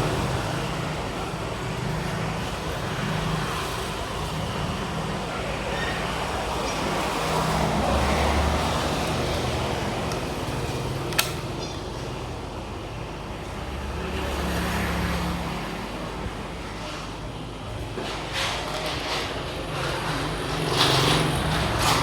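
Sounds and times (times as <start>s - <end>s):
rumbling traffic-like noise: 0.0s - 22.0s
sharp click: 11.1s - 11.8s.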